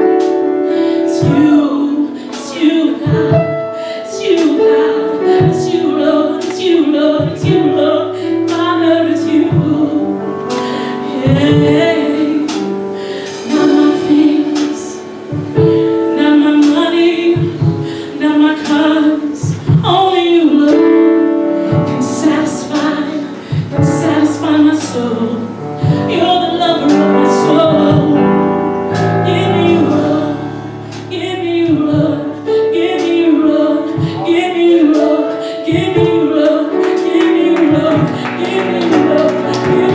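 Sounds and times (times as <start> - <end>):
women singing gospel: 0.6 - 39.9
band accompaniment: 4.2 - 20.9, 21.7 - 39.9
drum hits: 8.5 - 18.0, 25.8 - 28.2, 34.0 - 39.9.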